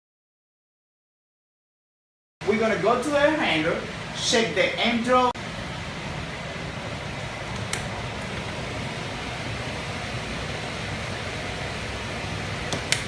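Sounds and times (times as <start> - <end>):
air handler blower rushing: 2.4 - 13.0
sharp click: 12.7 - 13.0.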